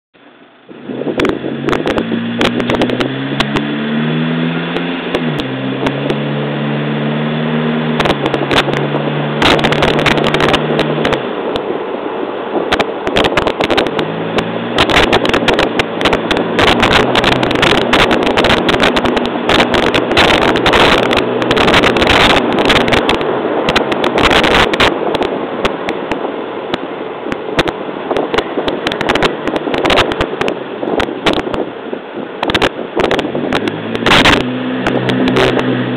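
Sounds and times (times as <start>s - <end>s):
road and wind noise: 0.2s - 35.9s
car engine revving: 0.7s - 11.7s, 13.2s - 25.4s, 33.0s - 35.9s
gear change: 0.7s - 11.7s, 12.7s - 31.6s, 32.4s - 35.9s
sharp crackles and knocks: 8.0s - 11.7s.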